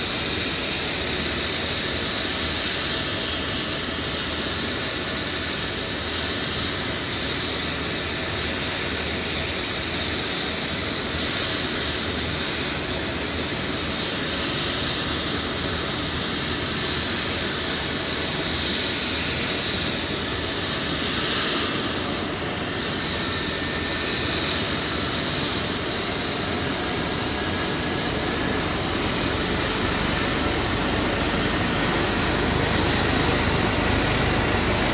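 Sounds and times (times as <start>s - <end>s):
helicopter rotor noise: 0.0s - 34.9s
helicopter turbine whine: 0.0s - 34.9s.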